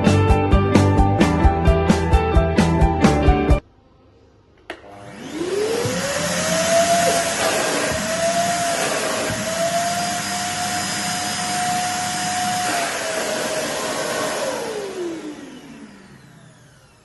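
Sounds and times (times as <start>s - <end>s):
vacuum cleaner whining: 4.7s - 17.0s
motor winding down: 4.9s - 17.0s.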